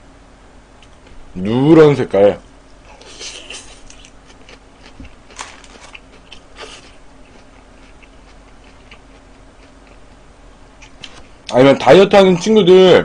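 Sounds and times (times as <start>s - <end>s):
faint steady hum: 0.0s - 13.0s
soft chewing: 2.7s - 11.6s.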